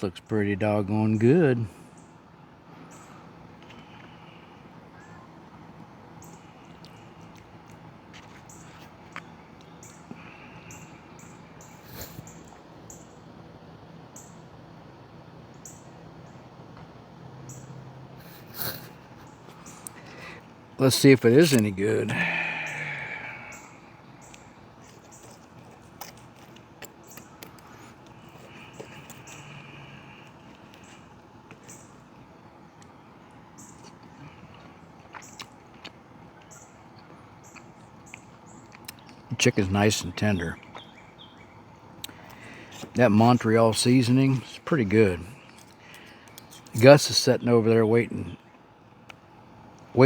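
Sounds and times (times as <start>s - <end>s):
steady low hum: 0.0s - 50.0s
insects chirping: 8.2s - 13.4s, 17.4s - 25.6s, 26.9s - 35.4s.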